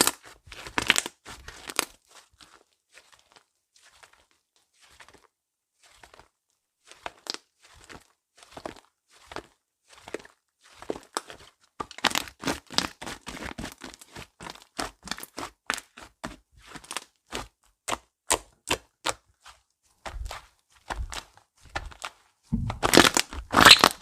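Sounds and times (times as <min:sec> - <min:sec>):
slime squished by hand: 0:18.0 - 0:24.0.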